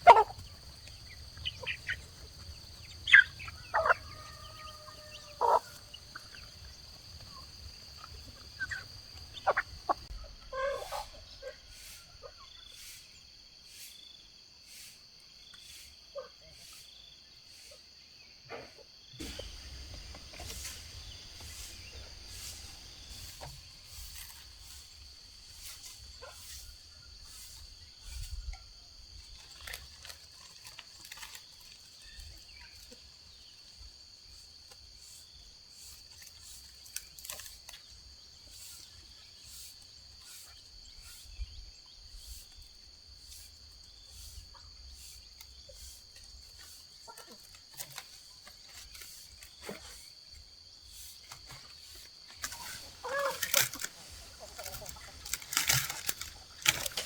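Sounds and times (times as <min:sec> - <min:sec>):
drawn-out animal call: 0:00.0 - 0:11.1, 0:19.2 - 0:24.7, 0:52.4 - 0:57.0
insects droning: 0:00.0 - 0:57.0.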